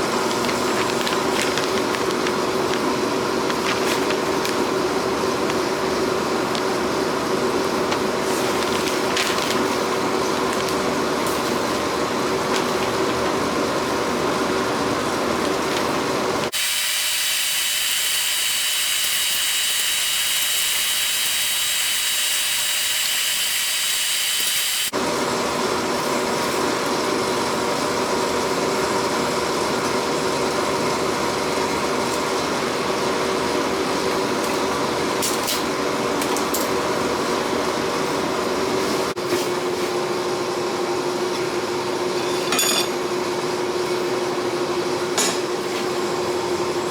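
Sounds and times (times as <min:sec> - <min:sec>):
power tool running: 0:16.5 - 0:26.7.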